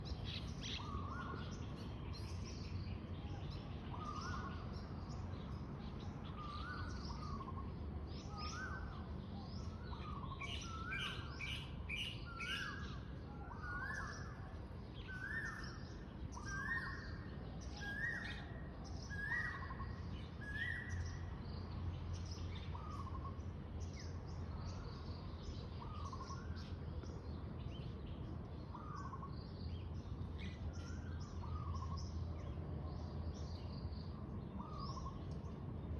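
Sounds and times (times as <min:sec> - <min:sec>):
birds chirping: 0:18.9 - 0:35.6.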